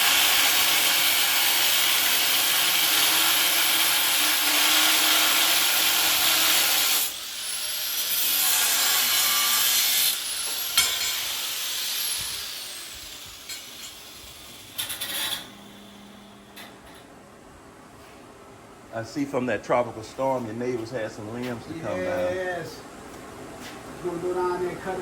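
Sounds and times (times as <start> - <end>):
power tool cutting metal: 0.0 - 16.7.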